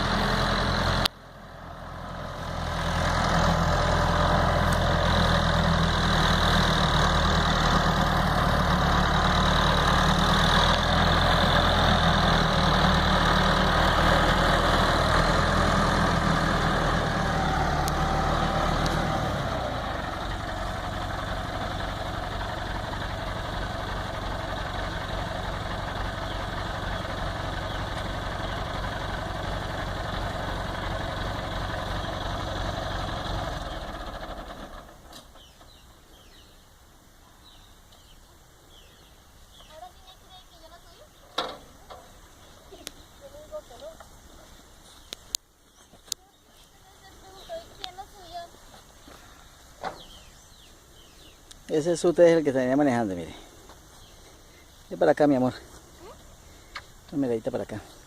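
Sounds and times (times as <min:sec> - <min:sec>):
tractor engine running: 0:00.0 - 0:36.3.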